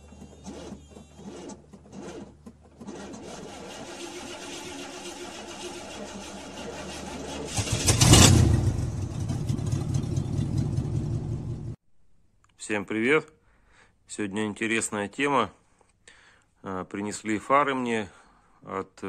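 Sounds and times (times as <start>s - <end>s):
car engine starting and idling: 0.0s - 11.8s.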